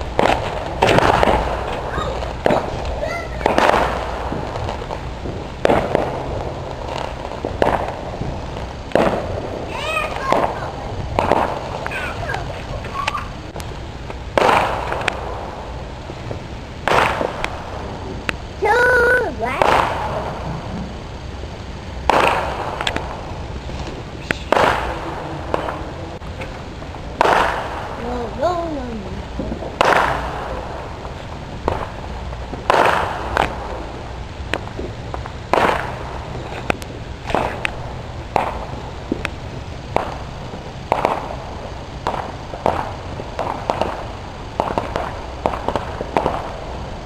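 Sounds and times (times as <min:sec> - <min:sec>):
fireworks bangs with rolling rumble: 0:00.0 - 0:47.0.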